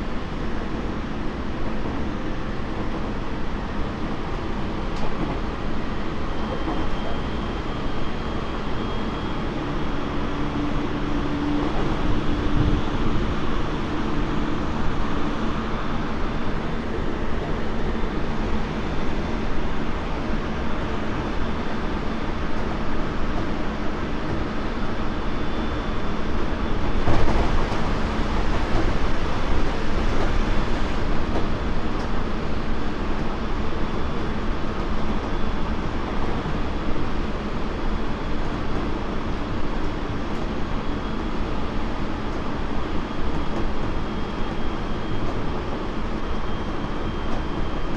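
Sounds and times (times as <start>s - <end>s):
train wheels rumbling on rails: 0.0s - 47.9s
train jolt: 26.4s - 33.3s.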